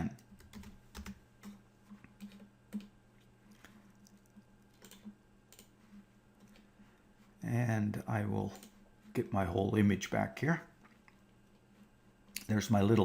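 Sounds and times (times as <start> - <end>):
low steady hum: 0.0 - 13.0
keyboard and mouse clicks: 0.2 - 3.0, 3.6 - 5.8.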